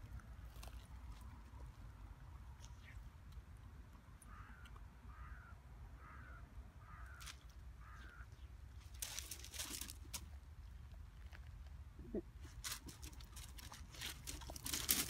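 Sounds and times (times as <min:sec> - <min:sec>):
rustling and crunching: 0:00.0 - 0:03.8, 0:07.1 - 0:15.0
bird calling faintly: 0:04.0 - 0:08.6.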